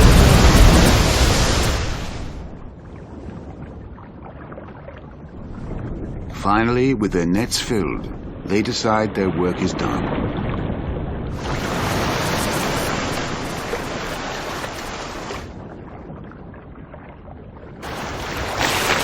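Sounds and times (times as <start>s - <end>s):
rough sea water surging: 0.0s - 19.0s.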